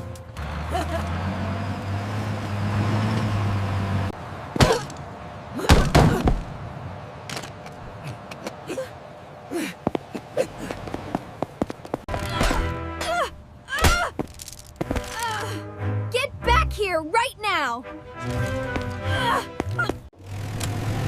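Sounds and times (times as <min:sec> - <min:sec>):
loud slams: 0:05.6 - 0:06.6
vehicle engine running: 0:20.1 - 0:21.0.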